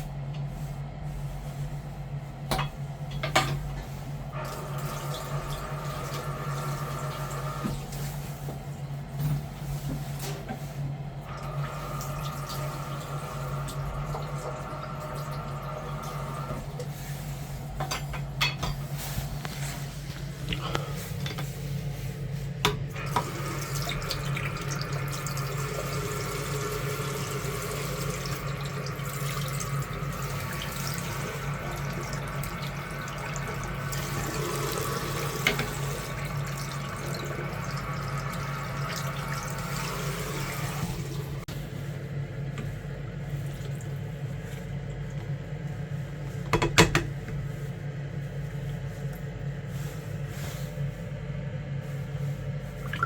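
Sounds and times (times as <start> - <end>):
water running and splashing: 23.0 - 41.5.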